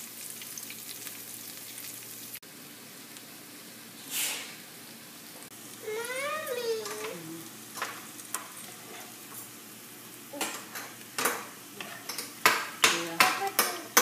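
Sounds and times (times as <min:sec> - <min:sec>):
food sizzling in hot oil: 0:00.0 - 0:14.0
utensil scraping a pan: 0:08.4 - 0:09.4.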